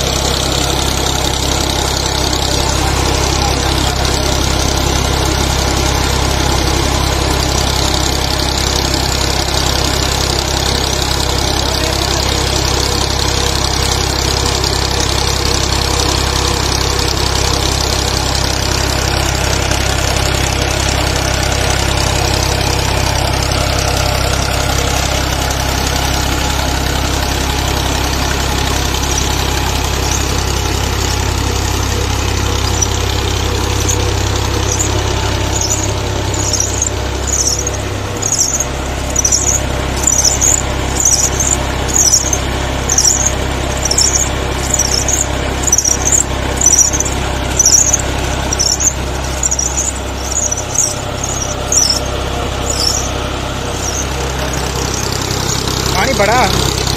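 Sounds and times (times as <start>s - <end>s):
tractor engine running: 0.0s - 56.9s
high squeak: 27.6s - 56.9s.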